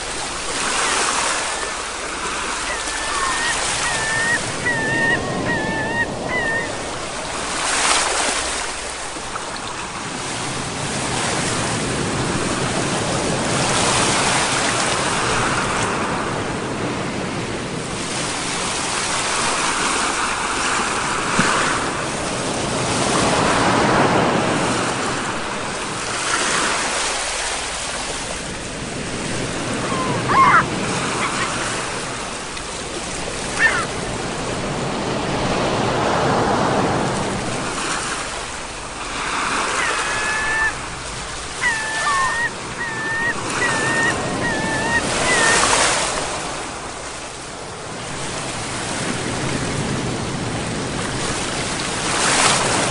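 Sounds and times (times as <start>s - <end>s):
sea waves breaking: 0.0s - 52.9s
high rising calls: 0.8s - 7.1s, 29.7s - 32.1s, 33.5s - 34.0s, 39.6s - 45.8s.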